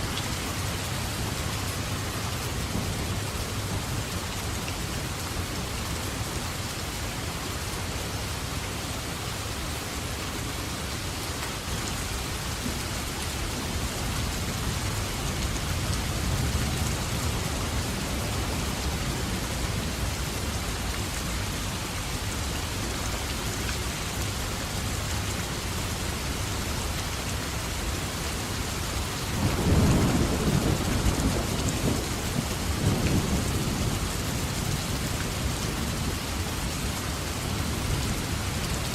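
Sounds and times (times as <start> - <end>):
heavy rain falling: 0.0 - 38.9
thunder rumble: 29.4 - 36.2.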